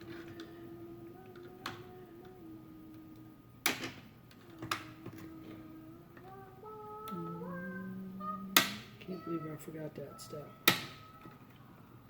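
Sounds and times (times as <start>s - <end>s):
person humming a low note: 4.5s - 9.3s.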